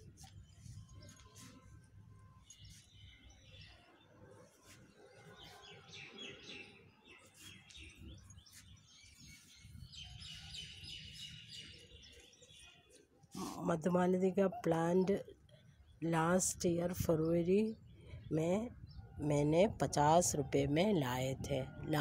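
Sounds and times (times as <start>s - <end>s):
small birds chirping: 0.0s - 19.6s.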